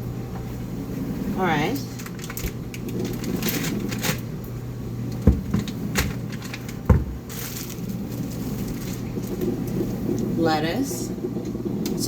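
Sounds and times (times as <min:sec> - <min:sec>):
steady low hum: 0:00.0 - 0:12.0
kitchen items clicking and rustling: 0:01.9 - 0:04.3, 0:05.2 - 0:10.3.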